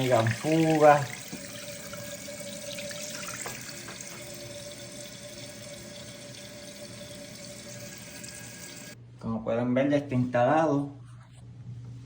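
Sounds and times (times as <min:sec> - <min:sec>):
toilet tank refilling hiss: 0:00.0 - 0:09.0.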